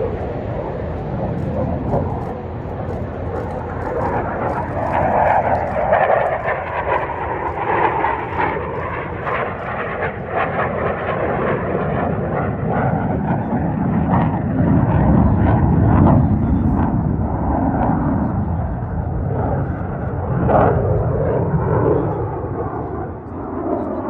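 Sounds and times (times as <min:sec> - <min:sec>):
jet engine rumble: 0:00.0 - 0:24.0.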